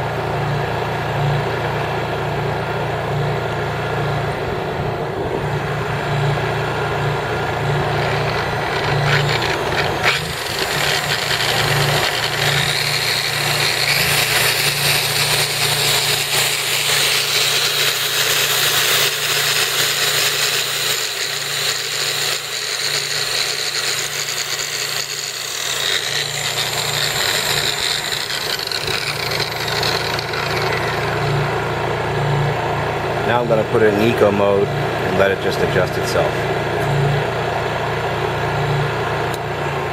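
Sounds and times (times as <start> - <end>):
electric buffer whirring: 0.0 - 39.9
generator engine hum: 0.0 - 39.9.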